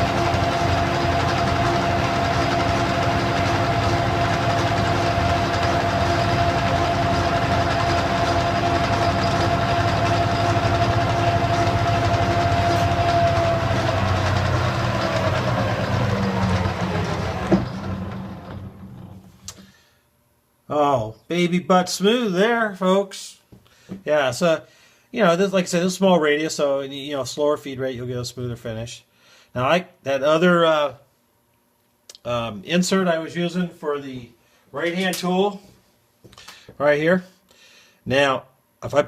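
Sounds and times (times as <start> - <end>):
metal lathe whining: 0.0 - 19.3
click: 31.5 - 32.2.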